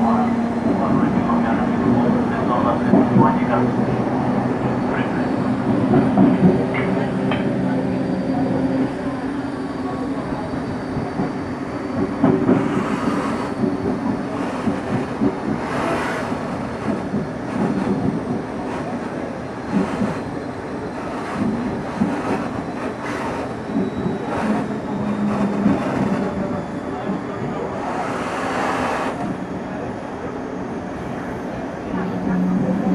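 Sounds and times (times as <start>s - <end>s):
low hum of train equipment: 0.0s - 32.9s
train wheels rumbling on rail: 0.0s - 32.9s
track clicks and clacks: 0.6s - 7.8s, 12.0s - 20.2s, 21.0s - 26.4s.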